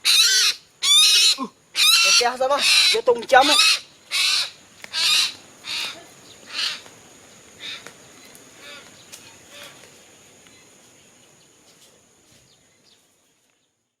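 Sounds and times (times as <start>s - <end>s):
crow cawing: 0.0s - 6.9s, 7.6s - 7.9s, 8.6s - 8.9s
high-pitched insect-like tone: 0.1s - 7.8s.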